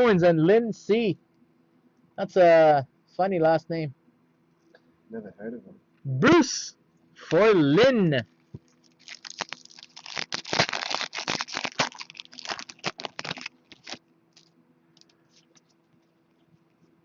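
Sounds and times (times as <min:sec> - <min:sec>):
cards and packaging rustling: 0:08.6 - 0:15.8.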